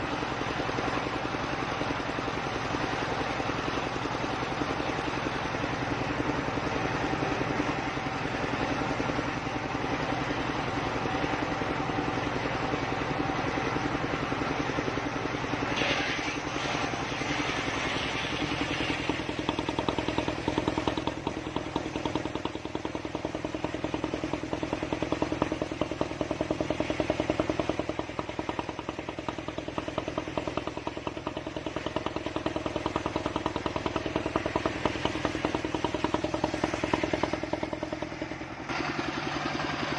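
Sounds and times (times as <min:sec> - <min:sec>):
engine-driven circular saw running: 0:00.0 - 0:39.9.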